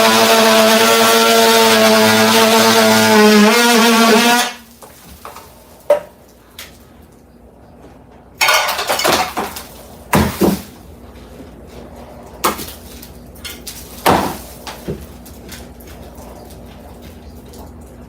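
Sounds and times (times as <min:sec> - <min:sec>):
hard objects clattering: 0:08.4 - 0:18.0.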